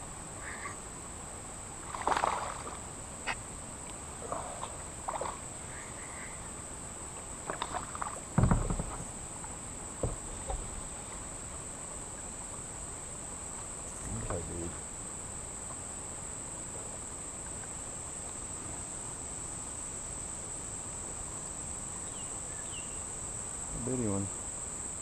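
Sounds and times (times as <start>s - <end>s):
insects droning: 0.0s - 25.0s
creek water splashing: 1.7s - 14.8s.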